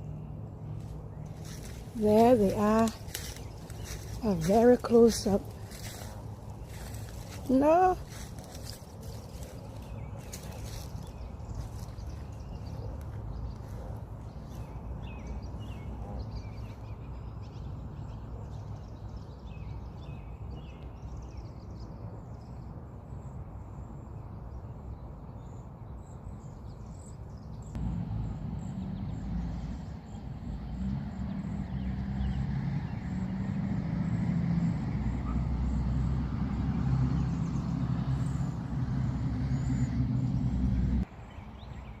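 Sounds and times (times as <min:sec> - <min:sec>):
steady low rumble: 0:00.0 - 0:17.9.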